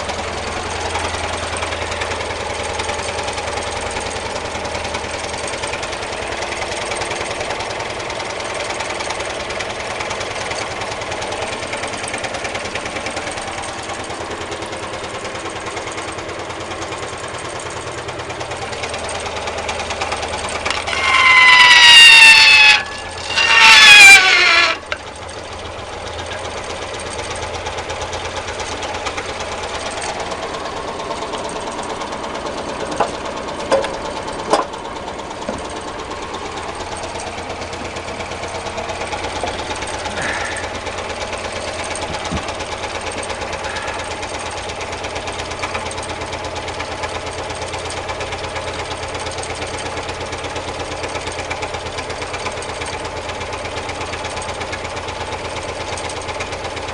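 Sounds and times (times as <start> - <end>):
engine clattering: 0.0 - 56.9
falling whine tones: 20.3 - 25.1.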